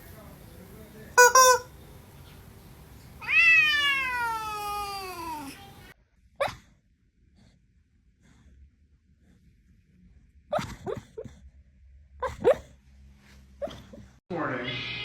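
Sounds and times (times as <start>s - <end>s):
cat meowing: 3.2s - 5.8s.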